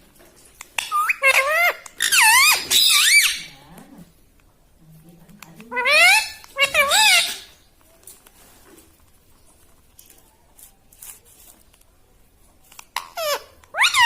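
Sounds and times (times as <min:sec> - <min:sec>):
faint clicks and scratching: 0:07.4 - 0:13.7.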